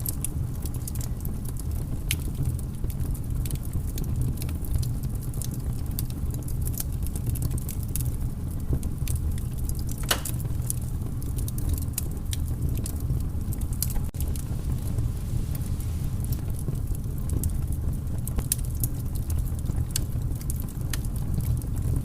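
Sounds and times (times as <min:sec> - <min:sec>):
wood fire crackling: 0:00.0 - 0:22.0
low rumble: 0:12.8 - 0:18.6.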